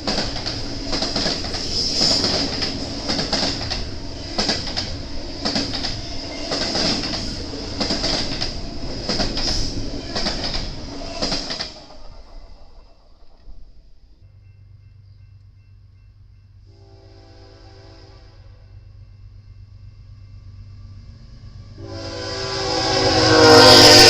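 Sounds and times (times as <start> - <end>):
train wheels clacking over joints: 0.0 - 13.9
train rumble: 0.0 - 24.0
high ringing whine: 12.4 - 16.8, 18.5 - 21.6.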